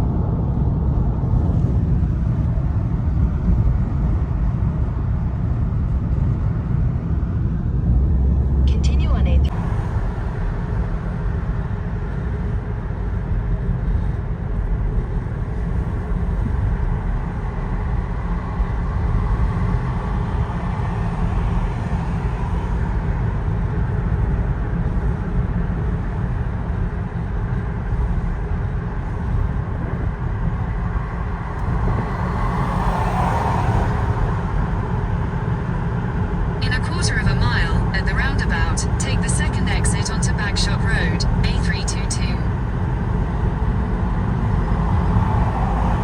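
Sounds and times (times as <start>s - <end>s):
car driving heard from cabin: 5.9s - 10.7s, 29.2s - 46.0s.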